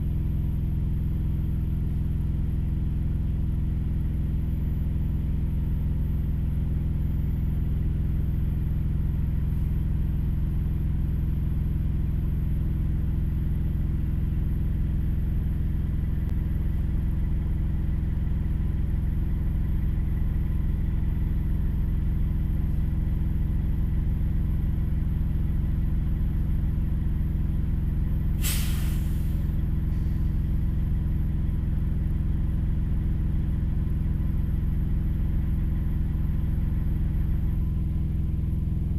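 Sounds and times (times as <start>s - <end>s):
diesel truck engine idling: 0.0s - 38.9s
air brake hiss: 28.4s - 30.3s.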